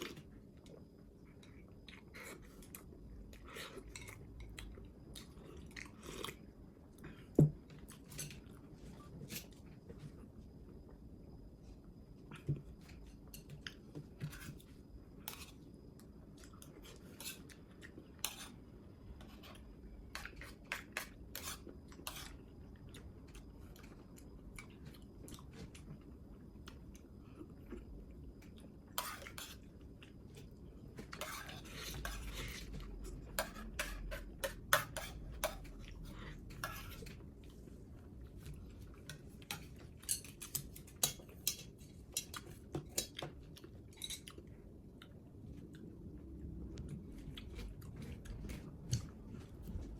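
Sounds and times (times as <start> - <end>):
utensils scraping dishes: 36.5 - 37.2
chewing: 46.7 - 49.9.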